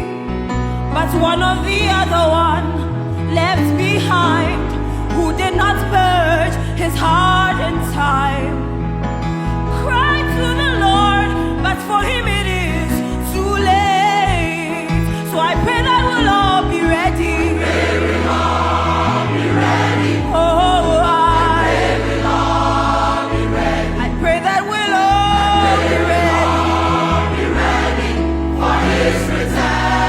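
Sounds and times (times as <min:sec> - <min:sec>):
choir singing gospel song: 0:16.8 - 0:30.0.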